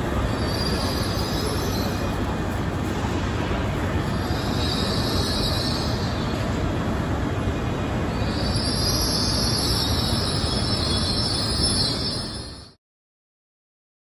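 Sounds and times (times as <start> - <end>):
train wheels rumbling on rails: 0.0 - 12.8
high wheel squealing: 0.2 - 2.2, 4.0 - 6.3, 8.1 - 12.7.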